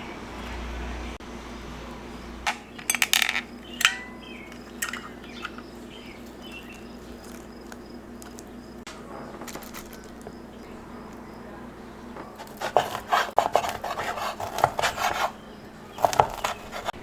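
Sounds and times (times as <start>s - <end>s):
faint background hum: 0.0s - 17.0s
faint high chirping: 1.8s - 12.4s
kitchenware clinking: 2.5s - 7.7s.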